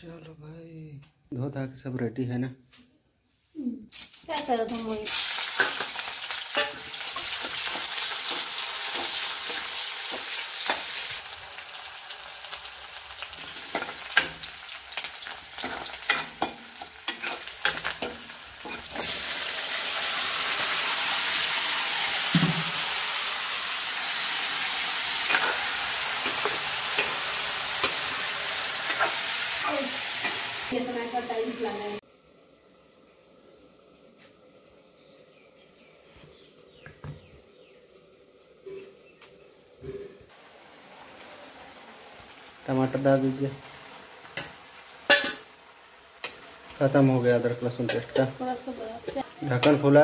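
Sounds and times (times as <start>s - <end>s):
onions sizzling in hot oil: 3.9s - 33.8s, 40.3s - 50.0s
spatula clinking and scraping pan: 5.5s - 11.0s, 13.6s - 19.1s, 25.2s - 29.4s, 44.4s - 45.5s, 49.0s - 50.0s.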